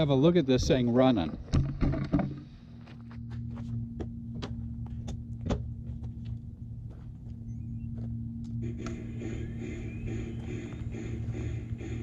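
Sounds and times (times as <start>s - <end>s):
hissing noise: 8.6s - 12.0s
model locomotive motor hum: 8.6s - 12.0s.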